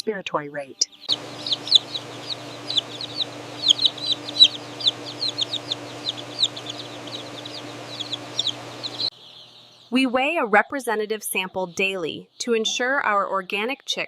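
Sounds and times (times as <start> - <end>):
steady low hum: 0.0 - 10.0
chicks peeping: 0.0 - 10.1.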